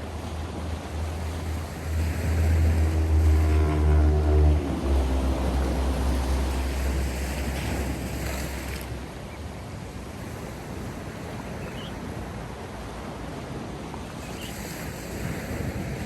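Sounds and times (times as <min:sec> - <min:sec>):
low engine drone: 0:00.0 - 0:10.0
sea surf washing: 0:00.0 - 0:16.0.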